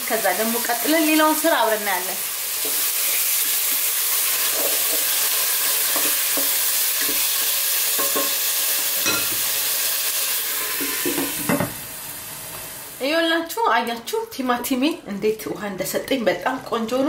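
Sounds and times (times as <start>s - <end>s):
vegetables sizzling in hot oil: 0.0s - 13.6s.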